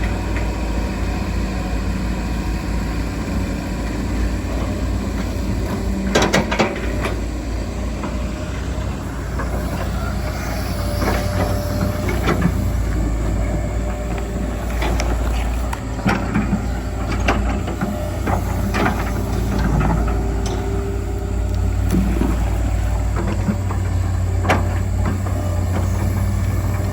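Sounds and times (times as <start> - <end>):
excavator diesel engine running: 0.0 - 26.9
metallic clanks and knocks: 15.8 - 20.9.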